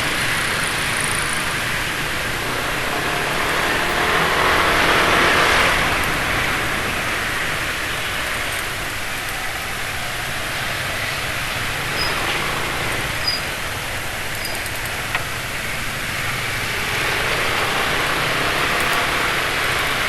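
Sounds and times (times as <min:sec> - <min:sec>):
vehicle passing: 0:00.0 - 0:09.0
road noise rushing: 0:00.0 - 0:20.0.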